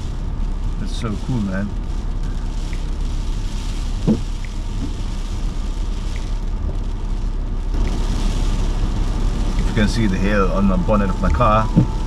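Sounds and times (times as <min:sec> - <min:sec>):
car engine and road rumble: 0:00.0 - 0:12.0
faint tick: 0:02.2 - 0:03.0, 0:06.1 - 0:06.3.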